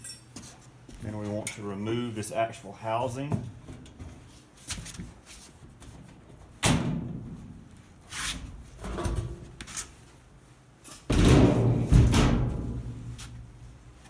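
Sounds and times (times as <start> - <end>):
sheet metal clunks and bangs: 11.1 - 13.1.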